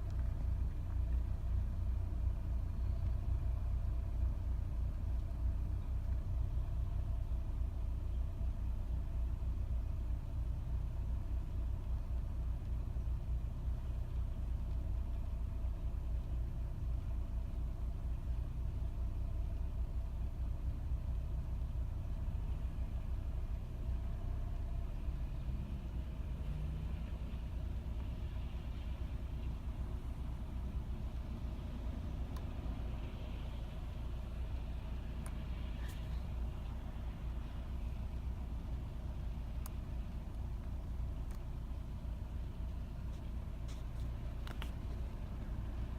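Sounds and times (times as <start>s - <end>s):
car engine idling roughly: 0.0s - 25.2s.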